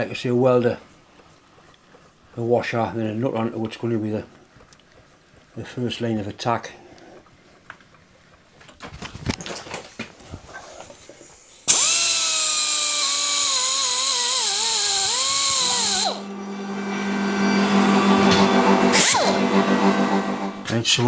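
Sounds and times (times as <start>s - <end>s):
electric power tool motor: 11.7s - 20.8s
steady low hum: 11.7s - 21.0s.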